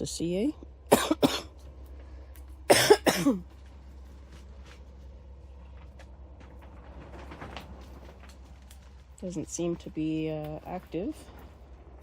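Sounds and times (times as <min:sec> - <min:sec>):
steady low hum: 0:00.0 - 0:12.0
rustling soil: 0:03.4 - 0:12.0.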